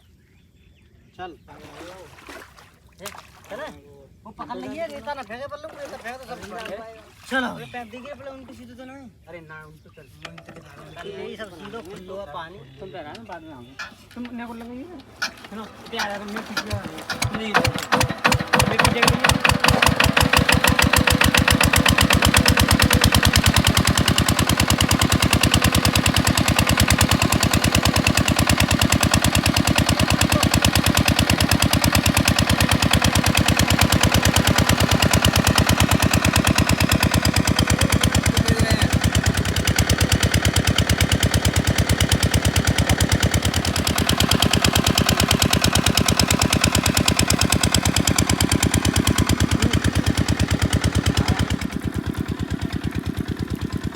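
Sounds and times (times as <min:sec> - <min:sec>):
diesel engine chugging: 0:15.0 - 0:53.9.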